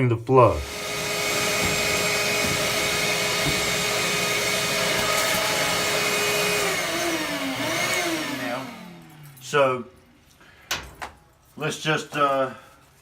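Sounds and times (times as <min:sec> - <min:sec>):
vacuum cleaner whining: 0:00.5 - 0:09.8.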